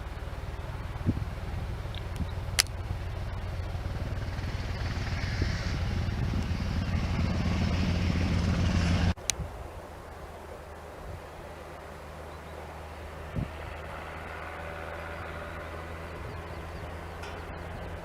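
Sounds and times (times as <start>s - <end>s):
helicopter rotor beating: 0.0s - 9.2s, 13.0s - 18.0s
sharp clicks: 1.9s - 2.8s.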